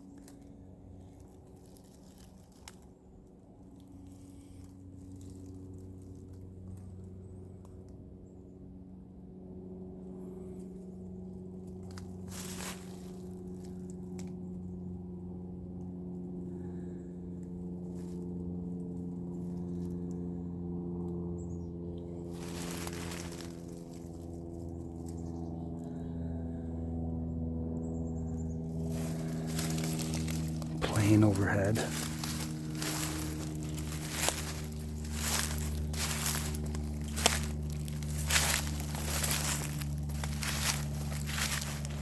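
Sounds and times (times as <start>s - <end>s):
plane engine drone overhead: 0.0s - 42.0s.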